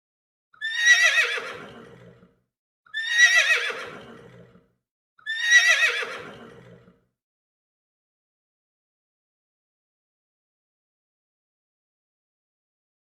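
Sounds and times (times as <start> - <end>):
horse whinnying: 0.6 - 2.3, 2.9 - 7.0.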